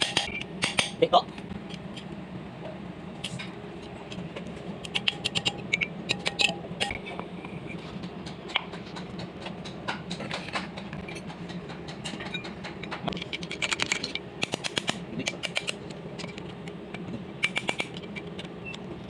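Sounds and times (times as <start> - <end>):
rapid clicks: 8.2 - 18.6
hand tools clicking on metal: 8.2 - 18.8.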